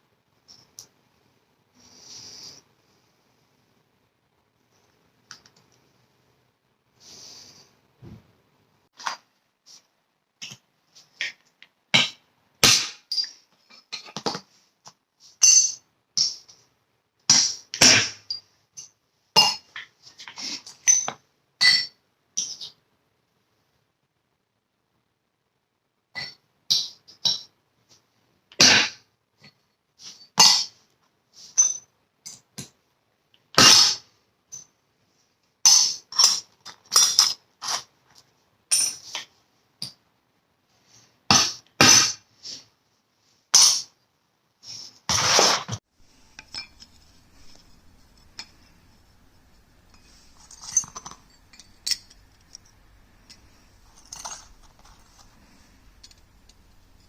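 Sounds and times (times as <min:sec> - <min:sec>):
metal tools clinking: 0:46.1 - 0:57.0.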